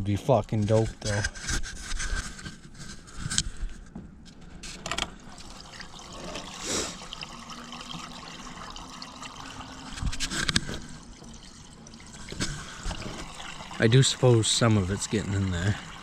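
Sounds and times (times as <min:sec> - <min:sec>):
gasoline pouring into filler: 0:05.0 - 0:16.0.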